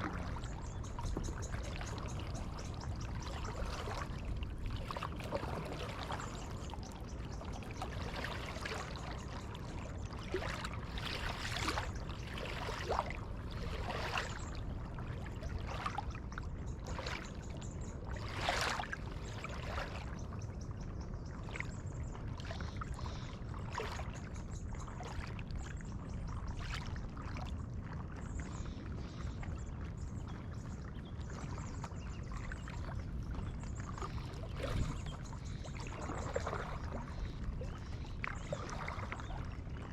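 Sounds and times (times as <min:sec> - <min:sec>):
low rumble: 0:00.0 - 0:01.8
kayak paddle splashing: 0:00.0 - 0:16.2, 0:16.8 - 0:20.2, 0:31.4 - 0:39.9.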